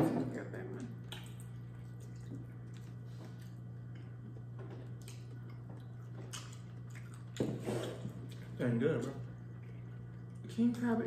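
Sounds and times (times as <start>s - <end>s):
steady low hum: 0.0s - 11.0s
chewing smacks and clicks: 4.9s - 7.4s.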